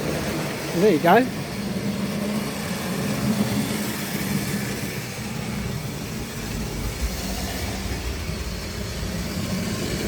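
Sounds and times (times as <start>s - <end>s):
model train motor hum: 0.0s - 10.0s
wheels rattling on track: 0.0s - 10.0s.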